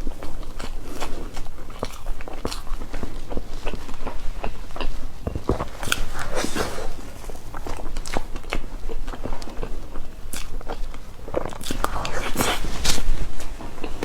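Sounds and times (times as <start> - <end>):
person chewing cake: 0.0 - 14.0
wet mouth clicks: 10.3 - 13.1.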